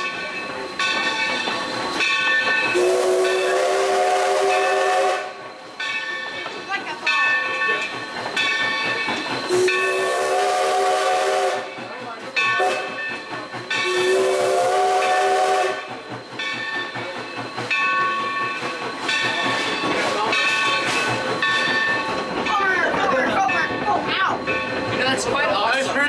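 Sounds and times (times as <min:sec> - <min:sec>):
steam hiss: 0:00.0 - 0:23.3
train running: 0:00.0 - 0:26.0
steam whistle chord blasts: 0:02.7 - 0:05.4, 0:09.5 - 0:11.7, 0:13.8 - 0:15.9.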